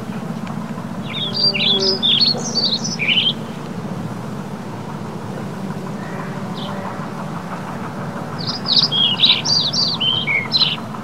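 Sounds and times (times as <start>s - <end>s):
low background hum: 0.0s - 11.0s
small bird chirping: 0.9s - 3.8s, 6.0s - 10.9s.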